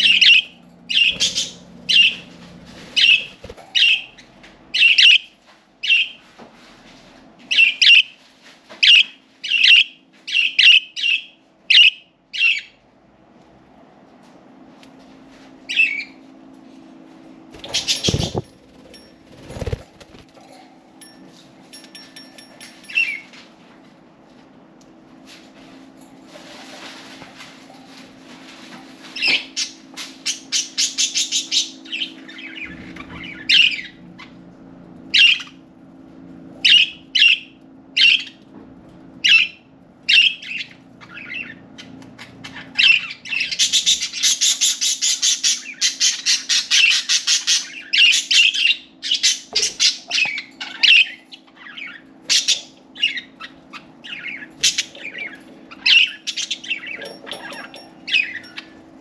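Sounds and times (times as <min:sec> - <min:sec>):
budgerigars warbling chatter: 0:00.0 - 0:04.2
low hum: 0:00.0 - 0:05.0
budgerigars chirping and squawking: 0:00.0 - 0:06.2, 0:17.6 - 0:18.8, 0:29.2 - 0:34.4, 0:35.2 - 0:35.6, 0:36.6 - 0:38.4, 0:39.2 - 0:58.8.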